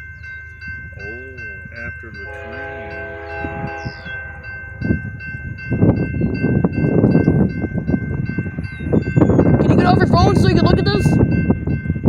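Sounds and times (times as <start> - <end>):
crossing warning bell ringing: 0.0 - 12.0
freight train rumble: 0.0 - 12.0
train horn: 2.2 - 5.2.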